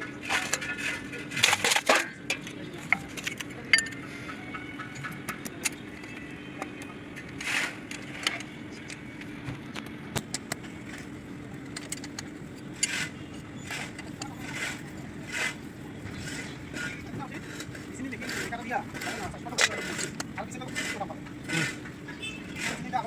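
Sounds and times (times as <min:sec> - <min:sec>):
metal parts and tools clinking: 0:00.2 - 0:04.0.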